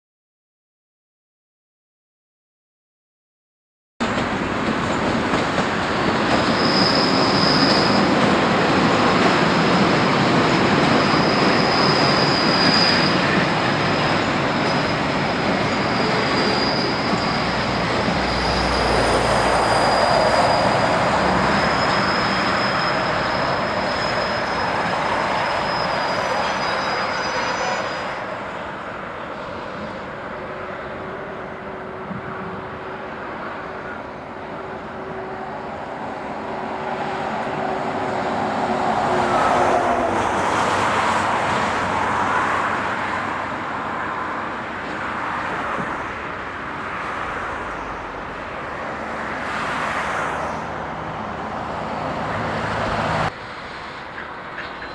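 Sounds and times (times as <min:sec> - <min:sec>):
railway wagons rumbling: 0:04.0 - 0:54.9
high-pitched wheel squeal: 0:06.2 - 0:28.6.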